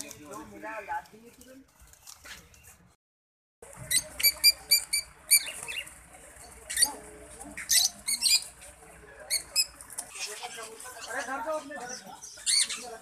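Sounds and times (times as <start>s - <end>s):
small birds chirping: 3.7s - 13.0s.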